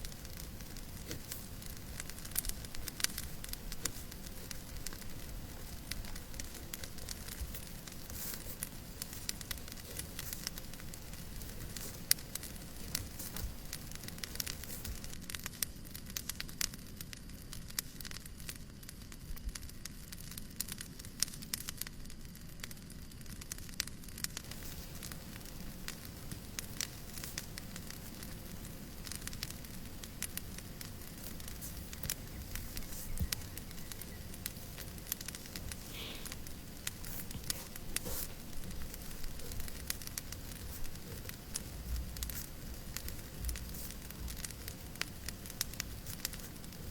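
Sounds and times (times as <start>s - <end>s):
fireplace crackling: 0.0s - 46.9s
low rumble of flames: 0.0s - 46.9s.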